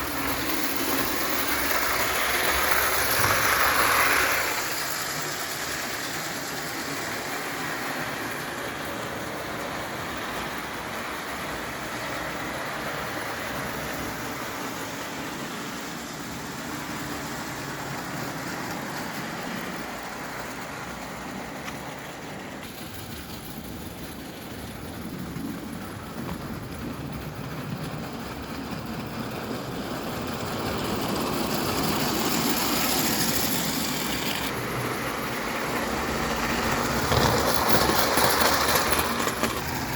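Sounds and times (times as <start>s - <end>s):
steam engine rushing: 0.0s - 39.9s.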